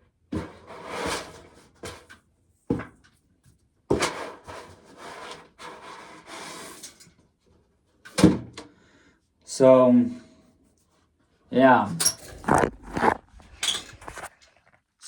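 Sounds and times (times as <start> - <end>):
rubbing and scraping on wood: 12.0 - 14.7.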